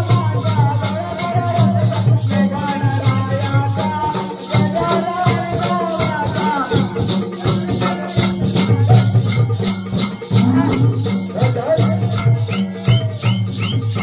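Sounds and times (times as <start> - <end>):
fast percussion beat: 0.0 - 14.0
wavering melody line: 10.0 - 12.0
steady low drone: 10.3 - 11.5.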